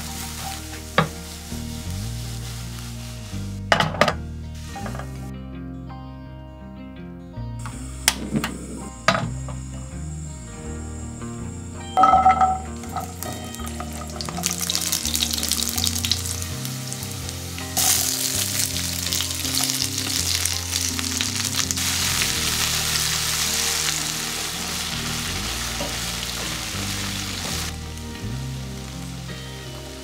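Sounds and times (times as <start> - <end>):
food sizzling in oil: 0.0 - 4.0, 12.0 - 30.0
garlic clattering into wok: 12.0 - 15.4.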